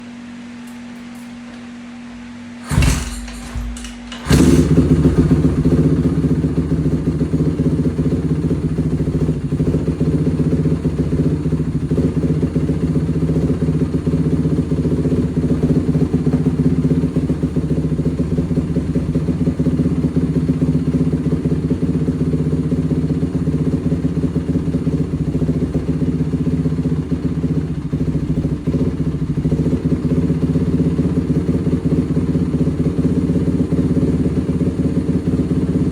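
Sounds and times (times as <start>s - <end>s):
engine turning over and idling: 2.6s - 35.9s.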